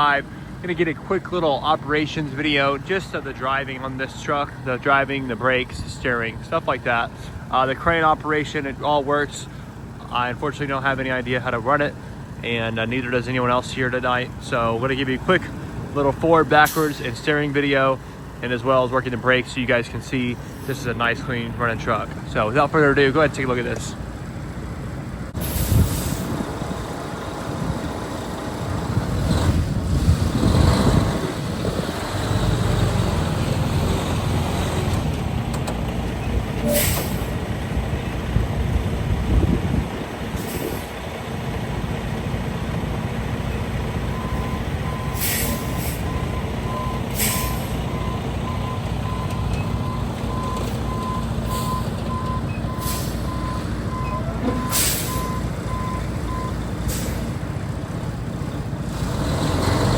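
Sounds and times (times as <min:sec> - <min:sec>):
truck diesel engine running: 0:00.0 - 0:59.9
air brake hisses: 0:25.4 - 0:26.4, 0:36.6 - 0:37.4, 0:40.4 - 0:40.9, 0:45.1 - 0:46.1, 0:47.1 - 0:47.8, 0:52.8 - 0:53.3, 0:54.6 - 0:55.3, 0:56.9 - 0:57.3
backup alarm beeping: 0:44.1 - 0:56.6.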